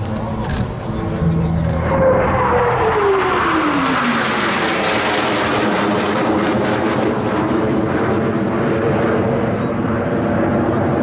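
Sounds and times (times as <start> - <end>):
jet whine dropping in pitch: 0.0 - 8.6
loud jet roar: 0.0 - 11.0.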